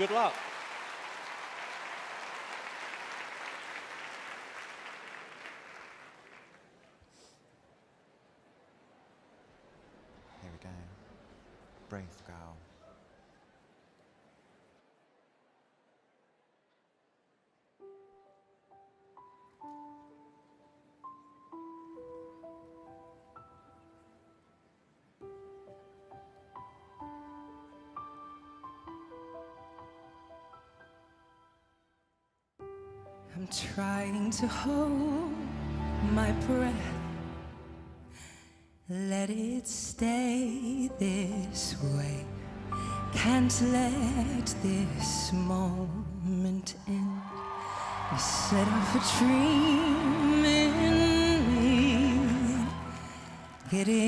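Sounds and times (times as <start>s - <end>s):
audience applauding: 0.0s - 7.1s, 47.1s - 54.0s
gentle piano notes and chords: 17.8s - 31.7s.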